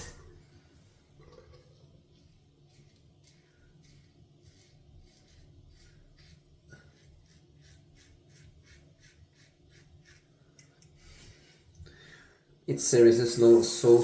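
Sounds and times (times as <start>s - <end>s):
shaving brush on lather: 1.6s - 11.7s, 12.7s - 14.0s.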